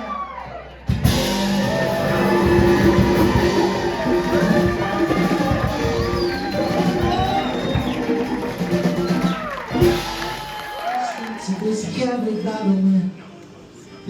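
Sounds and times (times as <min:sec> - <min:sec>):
drums: 0:00.8 - 0:11.5
live band playing: 0:00.9 - 0:11.5.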